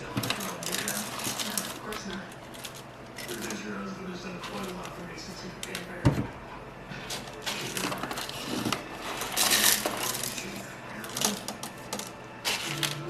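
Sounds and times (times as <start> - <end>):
coffee beans rattling into hopper: 0.0 - 3.6, 7.1 - 13.0.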